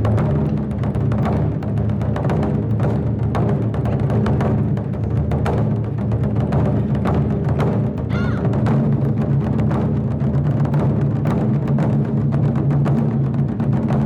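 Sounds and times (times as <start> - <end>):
taiko drums playing fast rhythm: 0.0 - 14.0.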